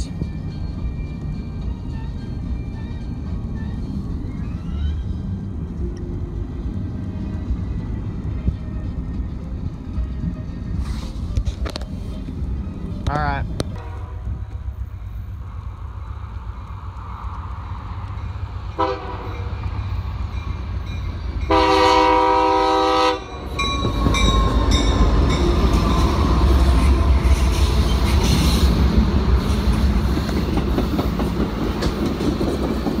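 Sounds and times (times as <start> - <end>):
train rumbling past: 0.0 - 33.0
wheels clickety-clack: 0.2 - 21.5, 23.6 - 33.0
locomotive air horn: 13.7 - 14.4, 18.8 - 19.4, 21.5 - 23.3.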